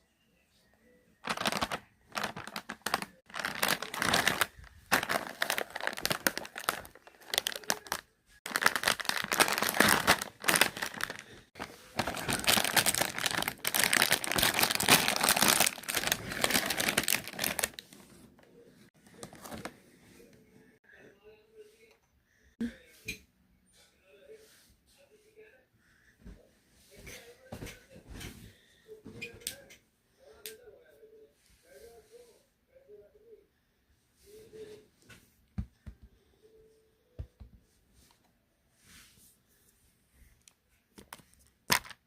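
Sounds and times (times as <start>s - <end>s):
chips packet crinkling: 1.2s - 17.9s, 41.7s - 42.0s.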